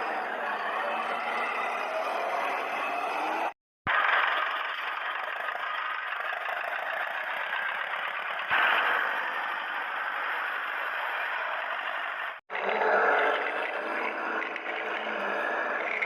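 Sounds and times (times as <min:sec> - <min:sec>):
toy vehicle motor buzzing: 0:04.0 - 0:16.0.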